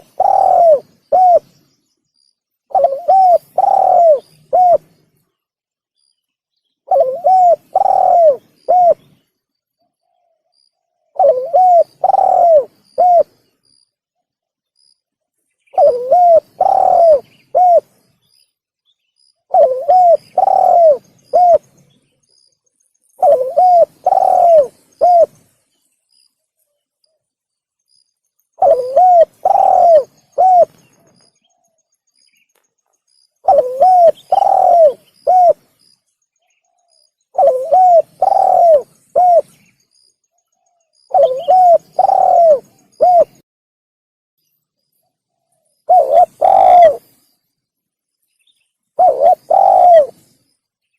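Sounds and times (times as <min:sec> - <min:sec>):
dove cooing: 0:00.0 - 0:01.5, 0:02.7 - 0:05.0, 0:06.9 - 0:09.2, 0:11.1 - 0:13.4, 0:15.7 - 0:18.0, 0:19.5 - 0:21.8, 0:23.2 - 0:25.4, 0:28.6 - 0:31.6, 0:33.4 - 0:35.7, 0:36.7 - 0:39.6, 0:41.1 - 0:43.4, 0:45.9 - 0:47.1, 0:49.0 - 0:50.3
faint high bird chirps: 0:00.0 - 0:43.4, 0:44.4 - 0:50.9.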